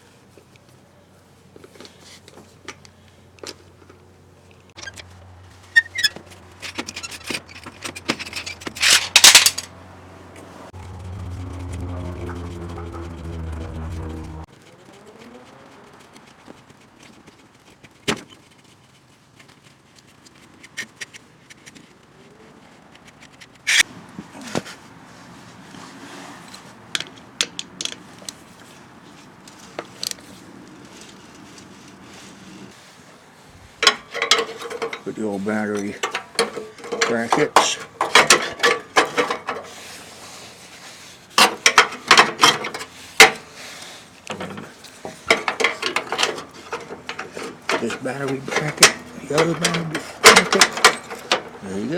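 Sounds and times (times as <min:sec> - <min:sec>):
metal parts clattering: 0:06.6 - 0:09.7, 0:33.8 - 0:35.0, 0:36.0 - 0:39.6, 0:45.2 - 0:51.6
metal brackets clanking: 0:06.7 - 0:09.7, 0:33.8 - 0:35.0, 0:36.0 - 0:39.7, 0:44.4 - 0:51.6.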